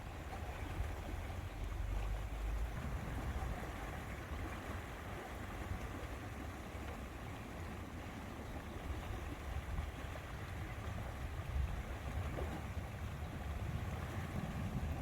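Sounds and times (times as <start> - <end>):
wind buffeting microphone: 9.0 - 15.0.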